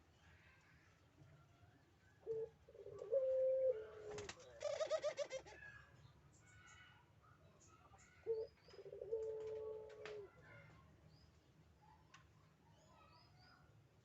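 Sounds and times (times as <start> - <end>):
dove cooing: 2.2 - 5.6, 8.2 - 10.3.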